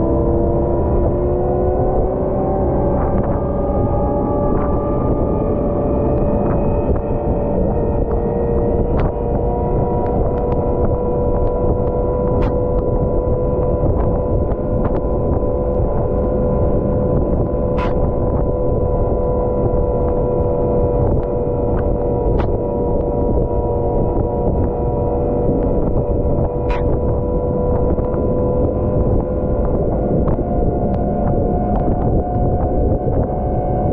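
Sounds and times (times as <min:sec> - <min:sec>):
steady whine: 0:00.0 - 0:33.9
sharp ticks: 0:11.4 - 0:16.4, 0:25.6 - 0:27.2.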